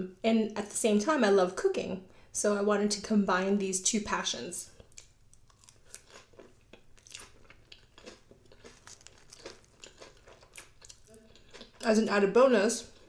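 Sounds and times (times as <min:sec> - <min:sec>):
crunching lettuce: 0:04.9 - 0:11.8.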